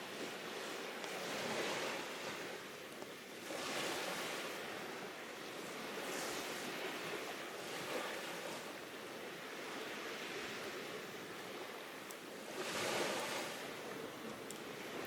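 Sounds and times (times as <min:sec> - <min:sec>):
sea waves washing ashore: 0:00.0 - 0:15.0
wood fire crackling pops: 0:14.5 - 0:14.7.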